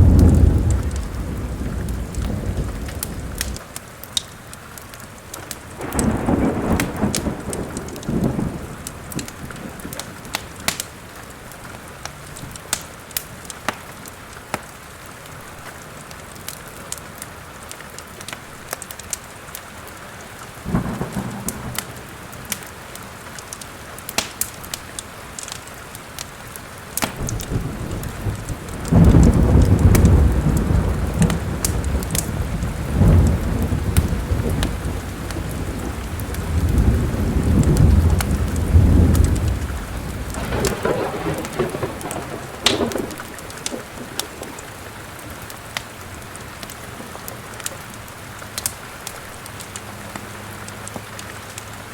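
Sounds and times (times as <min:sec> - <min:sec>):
thunder rumbling: 0:00.0 - 0:03.7, 0:05.7 - 0:10.8, 0:20.6 - 0:23.1, 0:27.1 - 0:46.8
steady rain: 0:00.0 - 0:51.9
wood fire crackling and popping: 0:00.0 - 0:51.9.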